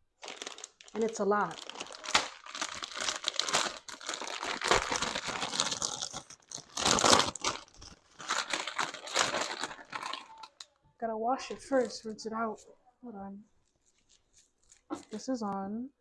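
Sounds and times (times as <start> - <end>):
plastic bag crinkling: 0.2 - 10.7.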